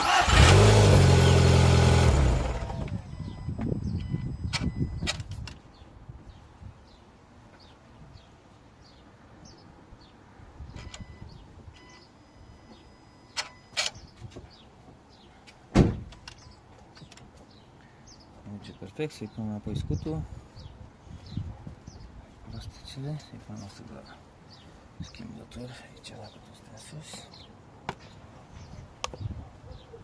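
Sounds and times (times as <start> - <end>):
car engine shutting off: 0.0 - 3.5
heavy thump: 15.7 - 16.1.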